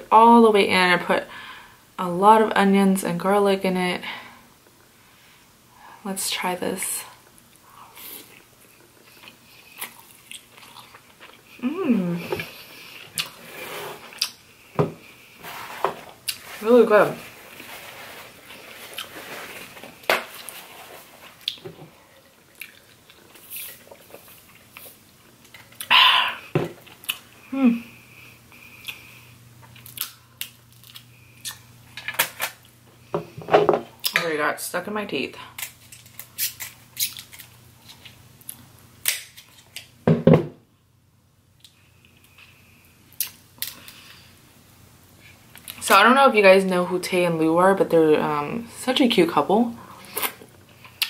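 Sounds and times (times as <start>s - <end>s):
close chewing and mouth sounds: 7.2s - 13.4s, 14.1s - 14.4s, 20.4s - 26.0s, 26.8s - 27.4s, 28.5s - 31.6s
low mouth noise: 11.5s - 12.6s.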